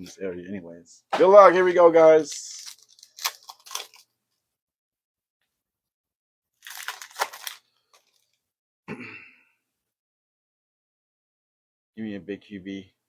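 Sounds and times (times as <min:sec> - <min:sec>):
foil wrapper tearing and crinkling: 0:02.2 - 0:04.1, 0:06.6 - 0:08.3.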